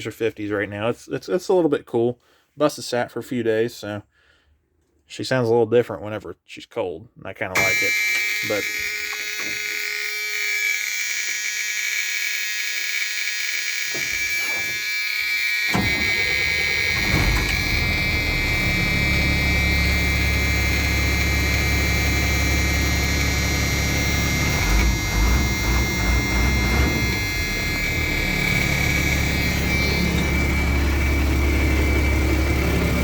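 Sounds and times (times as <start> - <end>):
high-pitched warning buzzer: 7.6 - 33.0
diesel engine cranking and starting: 15.7 - 33.0
diesel engine idling: 15.9 - 33.0.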